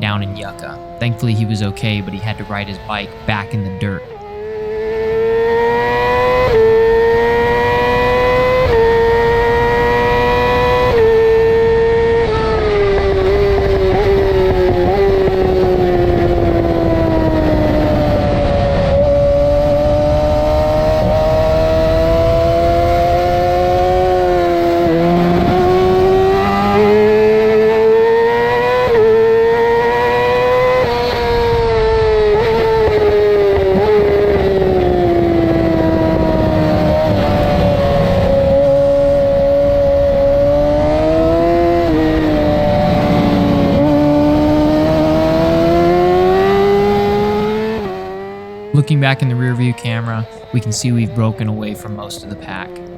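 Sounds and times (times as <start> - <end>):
motorcycle engine at high revs: 0.0 - 52.9
wind noise: 10.9 - 23.8.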